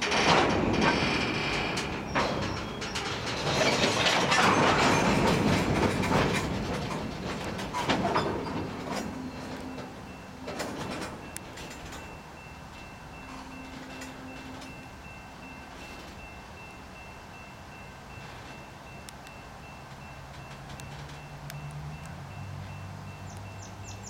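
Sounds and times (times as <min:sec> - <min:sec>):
train wheels clanking over rail joints: 0:00.0 - 0:24.0.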